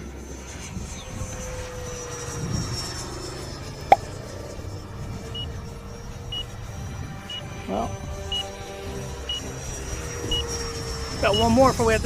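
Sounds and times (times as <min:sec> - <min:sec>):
rc jet whining: 0:00.1 - 0:12.0.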